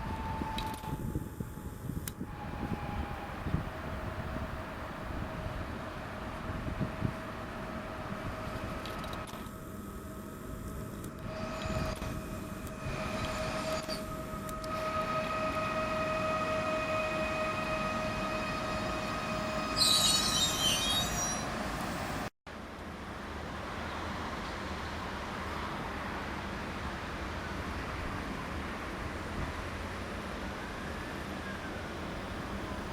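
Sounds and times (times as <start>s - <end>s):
electric train high-pitched squeal: 0.0s - 4.2s, 11.2s - 22.3s, 30.6s - 32.9s.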